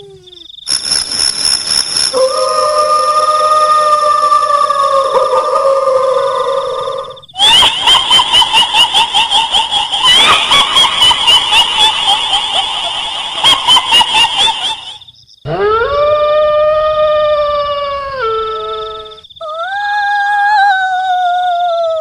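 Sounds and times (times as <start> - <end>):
shrill ghost laughter: 2.1 - 19.1
pitched wail: 2.1 - 22.0
dog howling: 2.2 - 8.0.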